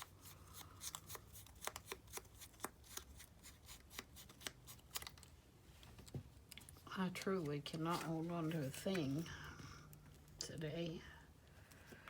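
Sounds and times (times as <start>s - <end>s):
scissors snipping paper: 0.0s - 5.2s.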